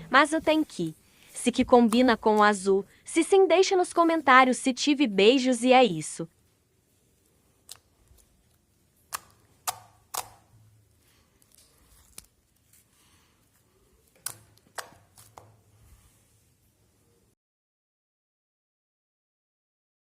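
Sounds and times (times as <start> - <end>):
slime squishing: 7.0 - 15.8
slime clicking and popping: 7.6 - 10.5, 14.1 - 15.5.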